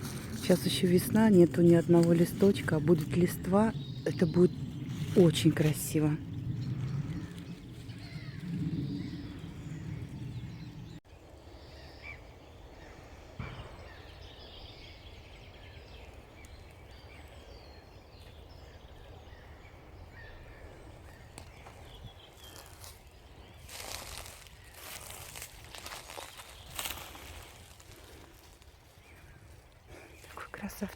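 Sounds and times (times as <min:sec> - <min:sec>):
low outdoor rumble: 0:00.0 - 0:11.0
faint songbird chirps: 0:02.9 - 0:30.9
rustle of movement: 0:21.2 - 0:30.9.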